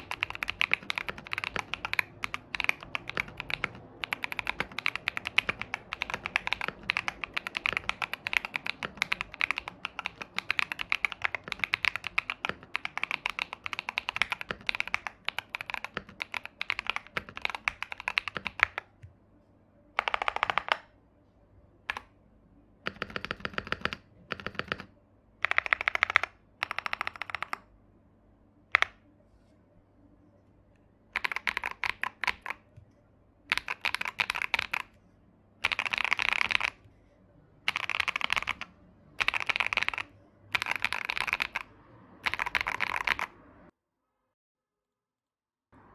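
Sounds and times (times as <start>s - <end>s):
typing on mechanical keyboard: 0.0s - 18.9s, 20.0s - 20.9s, 21.9s - 22.1s, 22.8s - 27.7s, 28.7s - 29.0s, 31.1s - 32.8s, 33.5s - 35.0s, 35.6s - 36.9s, 37.6s - 43.7s.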